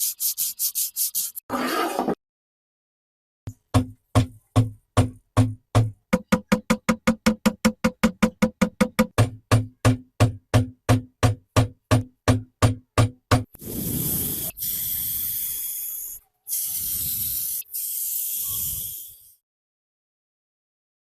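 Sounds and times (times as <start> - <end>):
sharp knocks with low thuds: 3.5 - 13.5.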